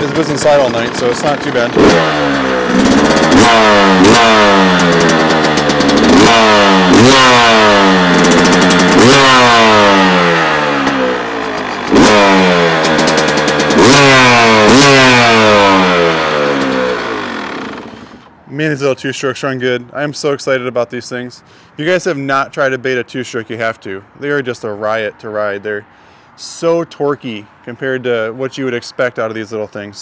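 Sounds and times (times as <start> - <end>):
dirt bike engine revving: 0.0 - 18.3.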